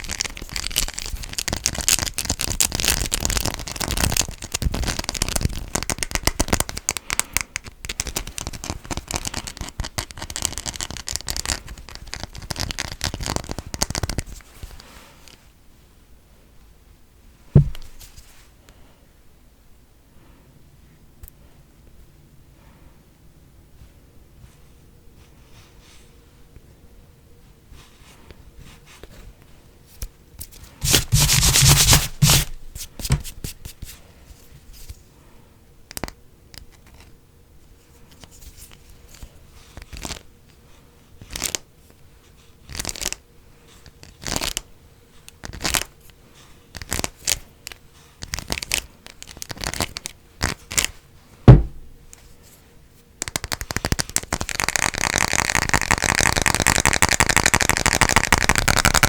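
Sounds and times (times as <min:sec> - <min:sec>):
scratching on objects: 0:30.0 - 0:35.0.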